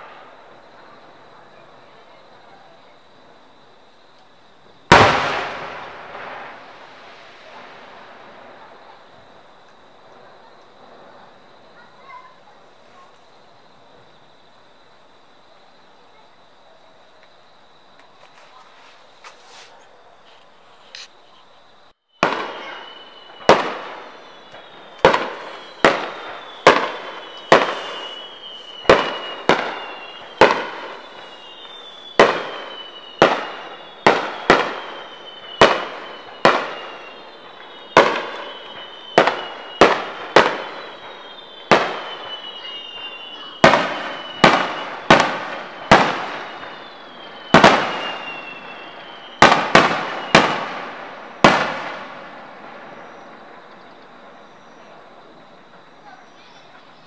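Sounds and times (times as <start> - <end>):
fireworks bursting: 0.0 - 15.2, 17.1 - 57.0
falling whistling tones: 22.1 - 57.0.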